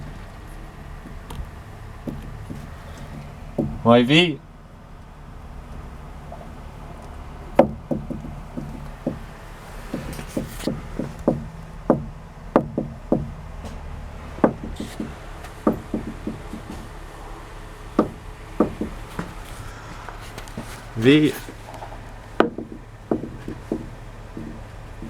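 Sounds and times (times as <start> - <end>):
car suspension clunking: 0.0 - 25.0.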